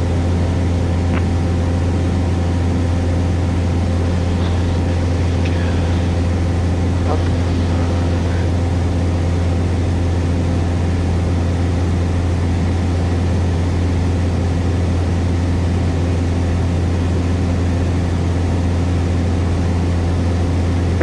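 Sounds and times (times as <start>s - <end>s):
light aircraft engine droning: 0.0s - 21.0s.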